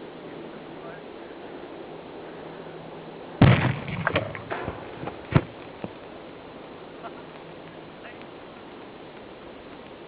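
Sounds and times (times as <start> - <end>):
sharp bang: 3.4 - 5.6
gas explosion blast with crackling: 3.4 - 5.7.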